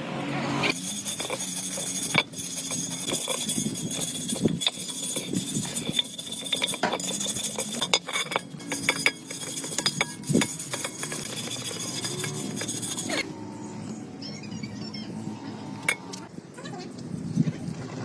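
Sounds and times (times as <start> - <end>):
metal clinking and tapping: 1.1 - 13.2.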